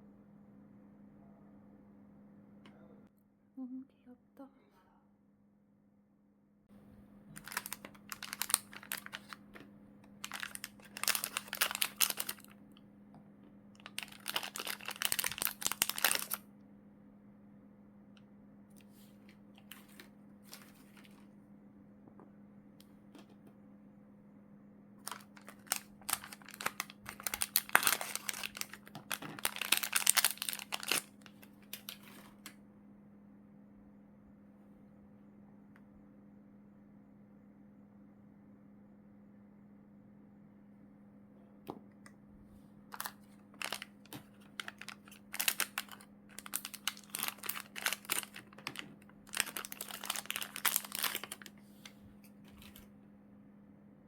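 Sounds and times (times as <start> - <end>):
faint steady hum: 0.0 - 54.0
plastic bags crinkling: 7.4 - 9.6, 10.2 - 12.6, 13.8 - 16.4, 19.6 - 21.2, 25.0 - 32.5, 42.9 - 52.9.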